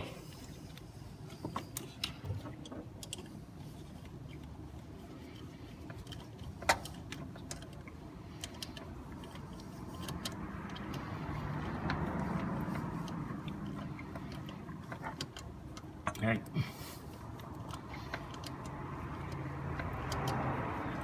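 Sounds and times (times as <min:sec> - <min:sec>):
metallic clicks of tools and bolts: 0:17.2 - 0:21.0.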